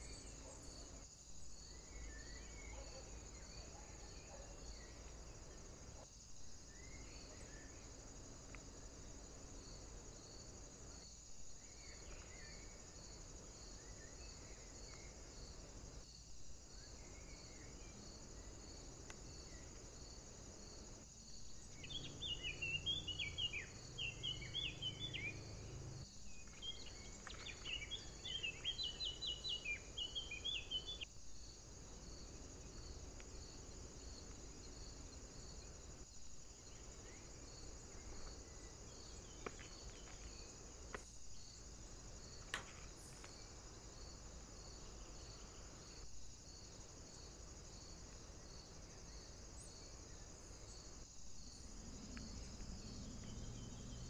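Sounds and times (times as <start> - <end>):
insect chirring: 0.0 - 54.0
songbird twittering: 21.7 - 25.7, 26.3 - 31.1.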